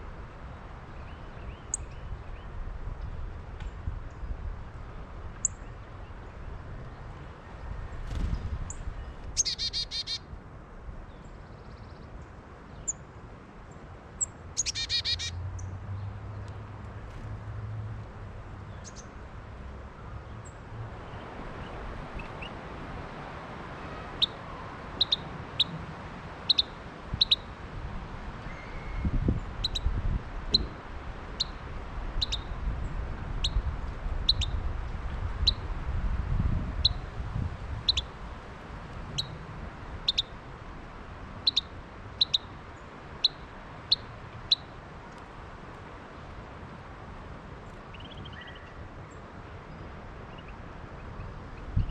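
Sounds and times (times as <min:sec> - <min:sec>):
wind rumble on microphone: 0:00.0 - 0:09.6, 0:15.4 - 0:42.7, 0:45.5 - 0:51.9
songbird chip calls: 0:09.3 - 0:10.2, 0:14.2 - 0:15.4, 0:25.0 - 0:25.7, 0:26.5 - 0:27.5, 0:28.5 - 0:29.9, 0:31.4 - 0:31.6, 0:32.2 - 0:32.5, 0:34.3 - 0:34.6, 0:36.8 - 0:37.0, 0:37.9 - 0:38.1, 0:39.2 - 0:39.4, 0:40.0 - 0:40.4, 0:41.4 - 0:42.5, 0:43.2 - 0:44.7, 0:47.9 - 0:48.8.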